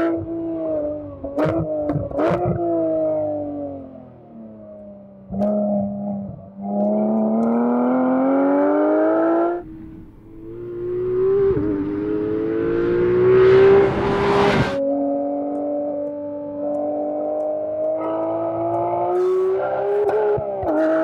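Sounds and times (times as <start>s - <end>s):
car engine accelerating hard: 5.4s - 21.0s
engine holding steady lower note: 9.5s - 15.2s.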